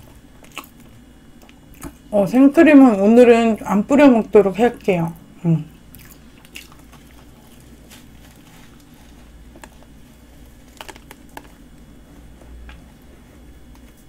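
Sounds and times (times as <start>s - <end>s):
chewing pastry: 0.0s - 2.1s, 4.7s - 14.0s
low steady hum: 0.0s - 14.0s
small sharp mouth clicks: 0.4s - 2.0s.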